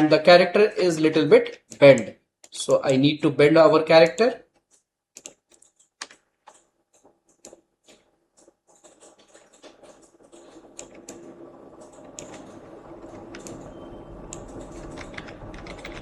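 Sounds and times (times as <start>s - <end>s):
computer keyboard and mouse clicks: 4.0s - 16.0s.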